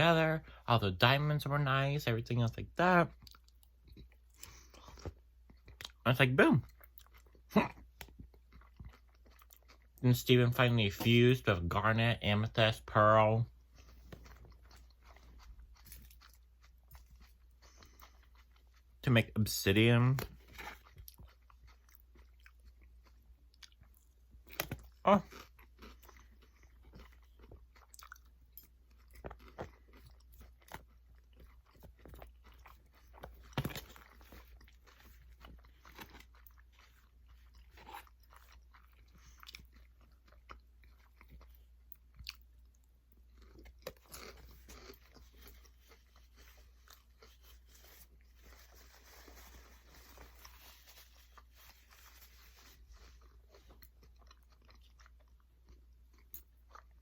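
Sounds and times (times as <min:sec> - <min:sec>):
person chewing and biting food: 0:06.7 - 0:10.0, 0:13.6 - 0:19.0, 0:20.3 - 0:57.0.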